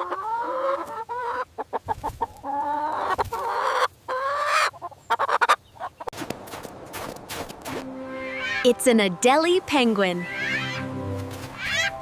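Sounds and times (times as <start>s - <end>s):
chicken clucking and calling: 0.0s - 6.1s, 10.2s - 12.0s.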